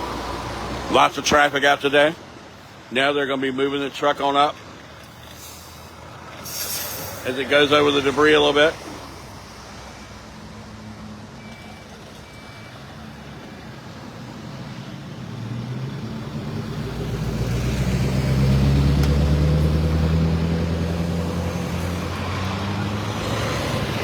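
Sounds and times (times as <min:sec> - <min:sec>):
short faint beeps: 0:11.4 - 0:12.8.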